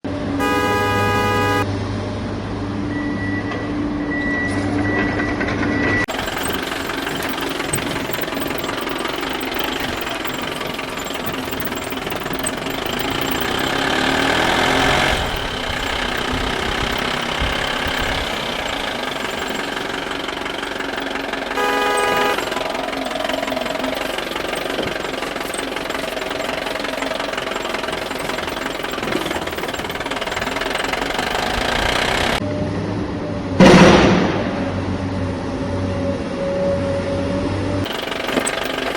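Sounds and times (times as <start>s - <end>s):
vehicle engine running: 0.1s - 2.7s, 6.0s - 32.4s, 37.6s - 38.9s
horn blaring: 0.4s - 1.8s, 6.4s - 30.4s.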